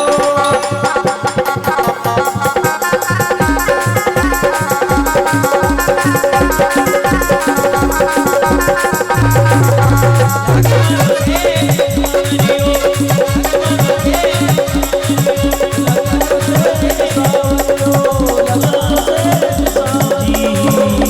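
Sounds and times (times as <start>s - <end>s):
fast hand-drum beat: 0.0s - 21.0s
melodic instrument line: 9.2s - 11.2s.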